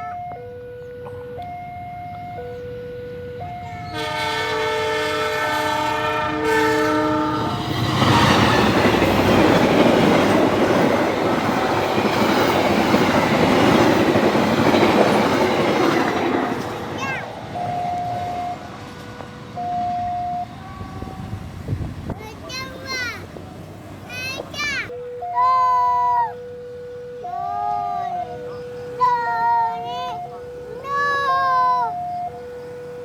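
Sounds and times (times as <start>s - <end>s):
two-note electronic warning signal: 0.0s - 5.0s, 17.5s - 21.4s, 26.3s - 33.0s
train horn: 3.7s - 8.8s
train rushing past: 3.7s - 24.9s.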